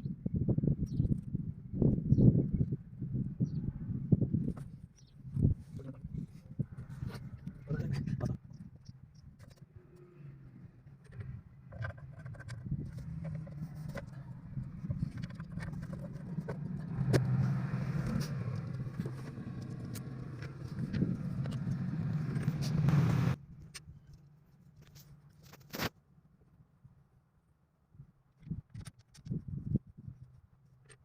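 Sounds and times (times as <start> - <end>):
engine humming: 9.5 - 23.4.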